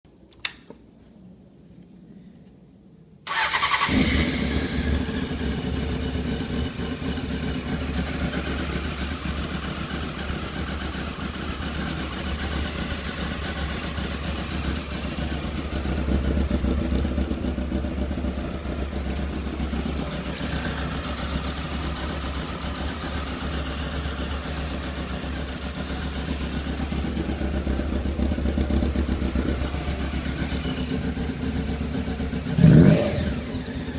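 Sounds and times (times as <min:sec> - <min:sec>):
motorcycle engine starting and idling: 0:03.2 - 0:33.9.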